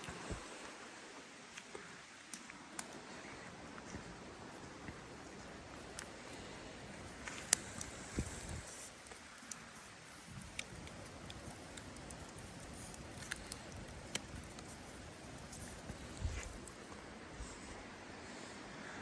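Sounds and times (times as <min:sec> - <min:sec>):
faint steady hiss: 0:00.0 - 0:19.0
small clicks and ticks: 0:05.2 - 0:17.0.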